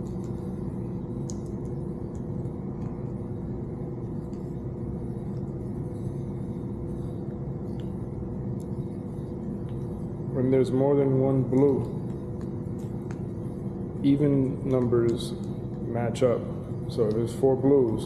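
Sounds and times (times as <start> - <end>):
low rumble with hum: 0.0 - 18.0.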